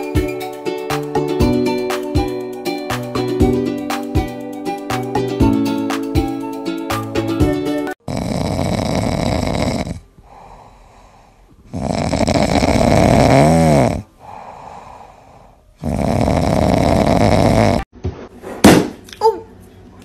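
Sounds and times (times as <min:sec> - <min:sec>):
cat snoring: 0:08.0 - 0:17.9
cat breathing: 0:10.1 - 0:11.9, 0:14.1 - 0:17.6.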